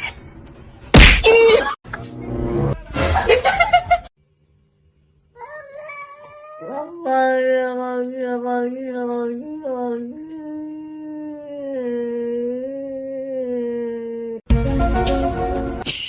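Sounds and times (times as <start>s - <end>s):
cat yowling: 5.4s - 7.0s.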